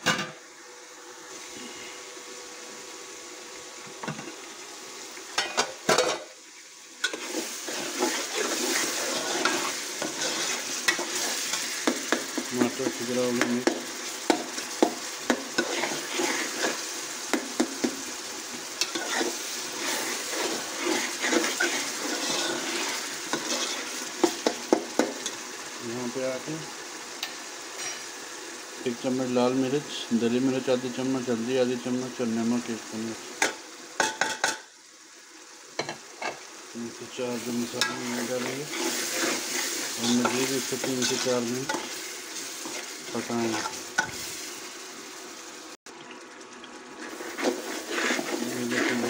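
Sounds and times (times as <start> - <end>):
masala sizzling in a pot: 0.0 - 49.0
metal ladle scraping a pot: 18.8 - 23.9, 47.0 - 49.0.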